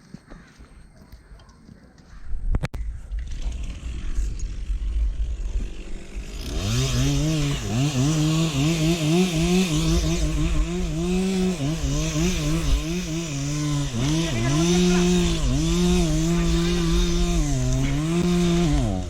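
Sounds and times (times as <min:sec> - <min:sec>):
chainsaw revving and cutting: 0:03.1 - 0:19.0.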